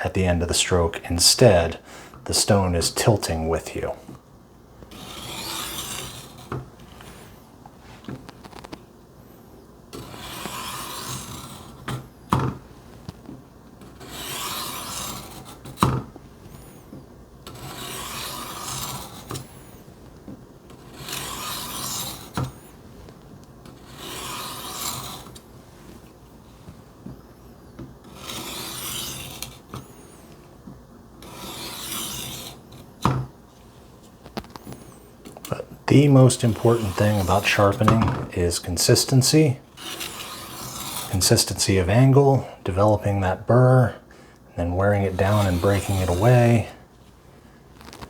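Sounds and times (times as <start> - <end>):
knife rasping on sharpening plate: 10.0 - 11.7, 14.0 - 15.5, 17.5 - 19.3, 21.0 - 22.3, 23.9 - 25.4, 31.3 - 32.6, 36.5 - 38.0, 39.8 - 41.1, 45.0 - 46.5.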